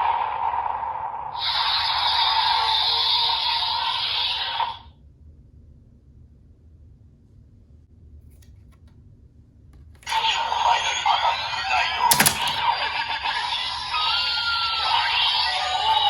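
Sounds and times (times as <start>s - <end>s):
sharp click: 12.1s - 12.6s.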